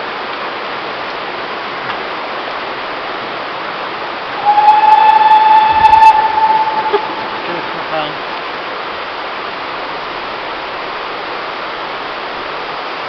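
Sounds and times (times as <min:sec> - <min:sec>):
steam locomotive whistle: 0:04.3 - 0:08.3
steady rushing noise: 0:04.3 - 0:08.4.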